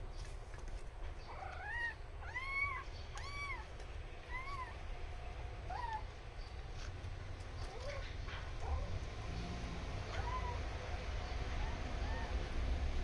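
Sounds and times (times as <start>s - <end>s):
cat meowing: 1.3s - 4.8s, 5.6s - 6.1s, 10.1s - 10.7s, 11.6s - 12.4s.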